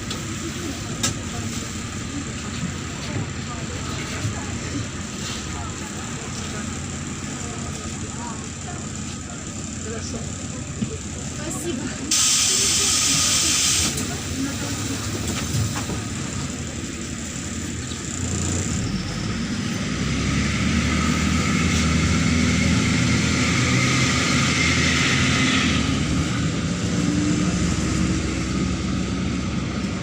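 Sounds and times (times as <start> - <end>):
bus diesel engine accelerating: 0.0 - 30.0.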